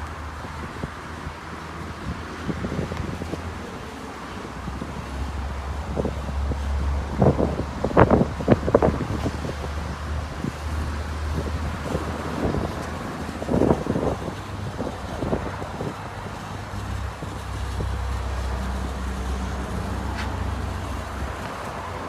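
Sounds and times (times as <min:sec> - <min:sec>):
pressure washer spraying: 0:08.8 - 0:22.0.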